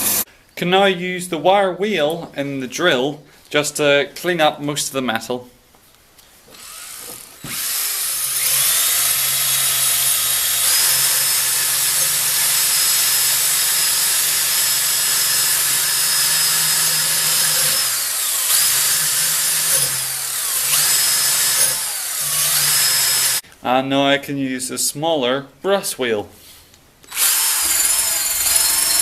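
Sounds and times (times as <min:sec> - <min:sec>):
electric drill with wire wheel: 0:00.0 - 0:00.3, 0:06.5 - 0:23.4, 0:27.1 - 0:29.0.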